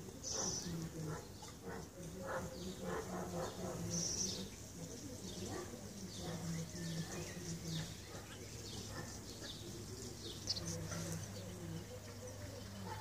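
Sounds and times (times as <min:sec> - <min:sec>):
birds chirping: 0:00.0 - 0:13.0
low voice-like murmur: 0:00.0 - 0:13.0.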